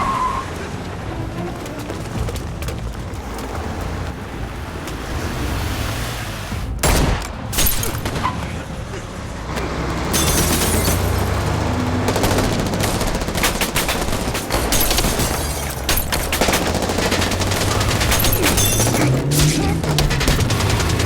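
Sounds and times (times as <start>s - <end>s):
gunshots and automatic fire: 6.8s - 8.9s, 9.8s - 21.0s.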